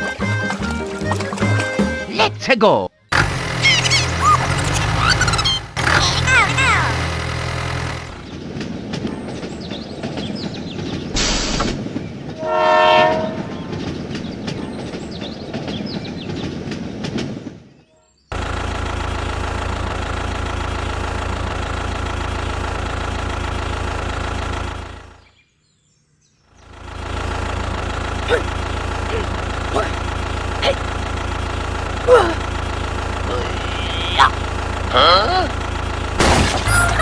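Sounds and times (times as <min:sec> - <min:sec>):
engine hum: 0:00.0 - 0:37.0
train horn blast: 0:12.4 - 0:13.8.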